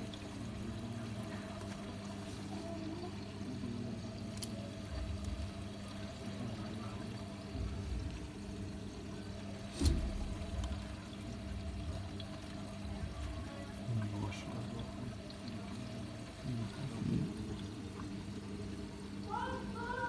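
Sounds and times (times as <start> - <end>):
washing machine motor hum: 0.0 - 20.0
water sloshing in washing machine: 0.0 - 20.0
sharp thump: 9.7 - 10.6.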